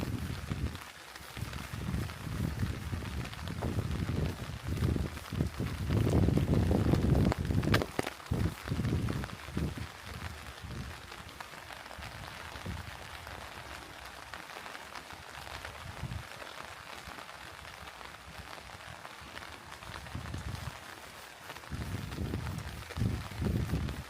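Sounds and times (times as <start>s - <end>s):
rain patter: 0.0s - 24.0s.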